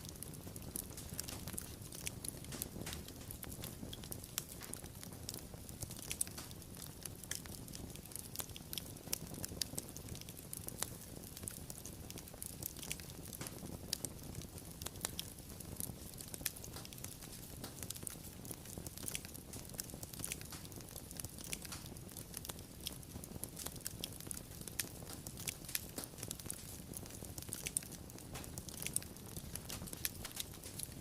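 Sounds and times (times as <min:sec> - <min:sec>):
wood fire crackling: 0:00.0 - 0:31.0.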